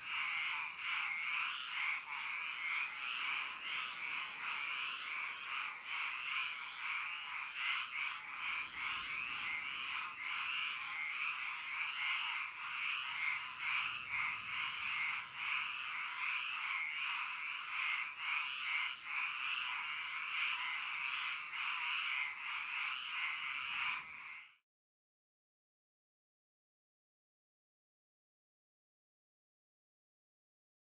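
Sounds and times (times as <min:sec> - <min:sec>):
chorus of frogs calling: 0:00.0 - 0:24.6.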